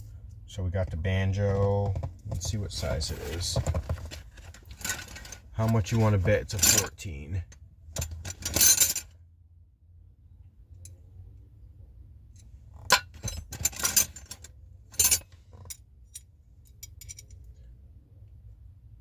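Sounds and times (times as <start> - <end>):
metal hand tools clinking: 4.8 - 6.9, 15.0 - 15.7.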